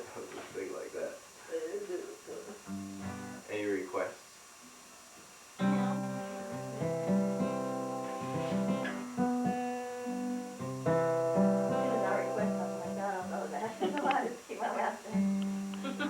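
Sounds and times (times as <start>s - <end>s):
acoustic guitar chords strummed: 2.7s - 3.4s, 5.6s - 14.0s, 15.1s - 16.0s
person speaking: 11.7s - 15.1s.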